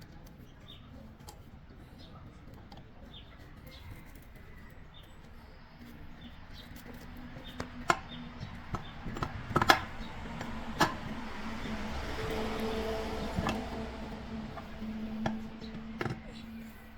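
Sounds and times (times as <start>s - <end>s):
sharp knocks and clicks: 7.4s - 16.8s.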